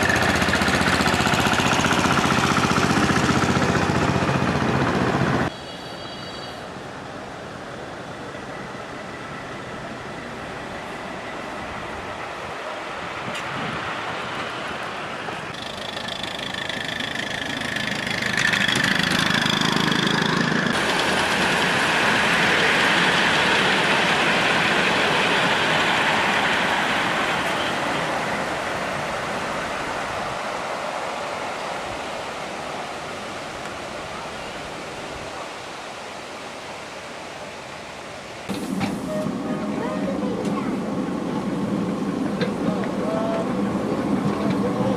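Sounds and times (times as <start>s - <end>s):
miniature train passing: 0.0s - 34.6s, 38.5s - 44.9s
faint high steady tone: 5.5s - 7.0s.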